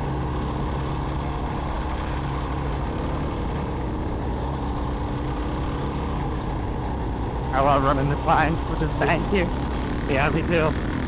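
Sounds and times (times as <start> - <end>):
motorcycle engine running: 0.0 - 11.0
constant noisy hiss: 7.1 - 11.0.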